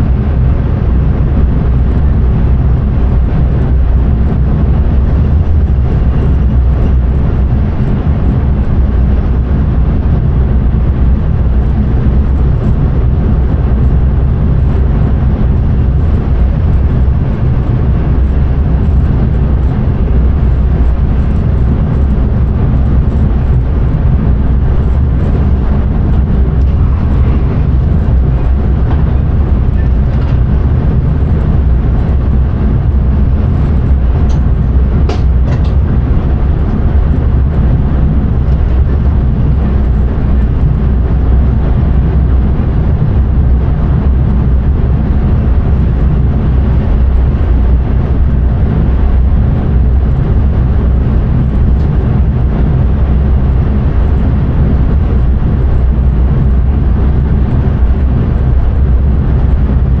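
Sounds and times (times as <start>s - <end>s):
train wheels rumbling on rails: 0.0s - 60.0s.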